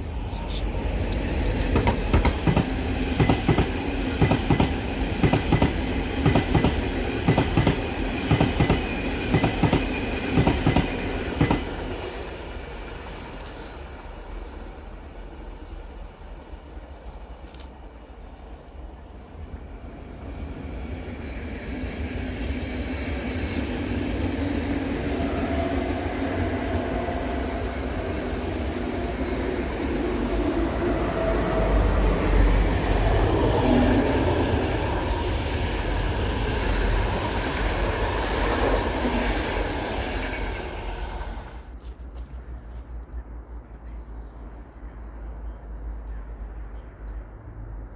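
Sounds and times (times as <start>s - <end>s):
passenger train passing: 0.0s - 47.8s.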